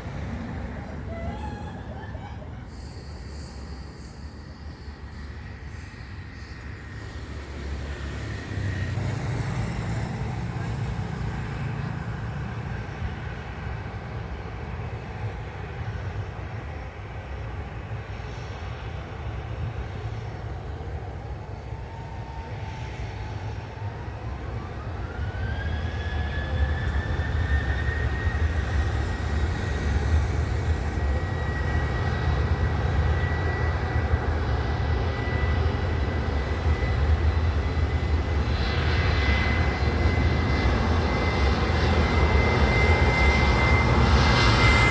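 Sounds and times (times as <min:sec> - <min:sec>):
airplane engines rumbling: 0:00.0 - 0:44.9
rising engine whine: 0:00.0 - 0:44.9.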